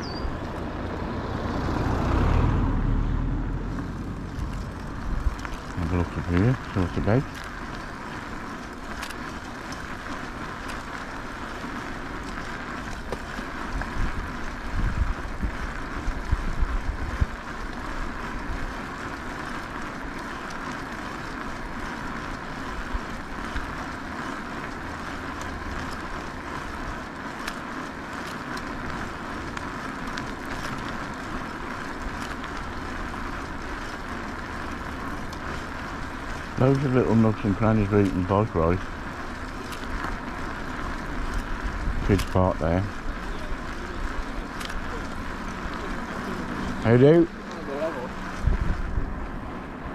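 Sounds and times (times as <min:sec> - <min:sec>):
e-bike rolling noise: 0:00.0 - 0:49.9
wind buffeting microphone: 0:03.6 - 0:09.0, 0:12.4 - 0:18.8, 0:35.2 - 0:47.3, 0:48.1 - 0:49.9.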